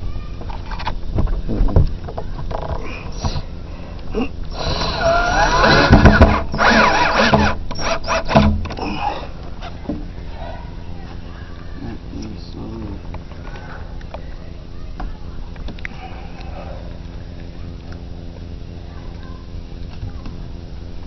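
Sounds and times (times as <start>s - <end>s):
cordless drill motor whine: 4.5s - 9.1s.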